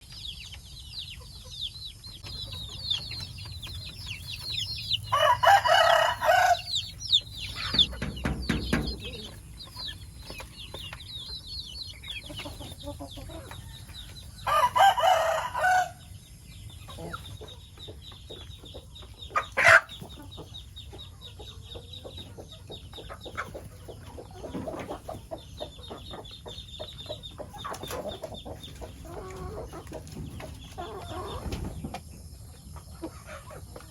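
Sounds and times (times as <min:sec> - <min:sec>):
chickens clucking: 0:00.0 - 0:33.9
high quick chirping: 0:02.2 - 0:11.3
rooster crowing: 0:04.6 - 0:07.2, 0:14.4 - 0:16.0.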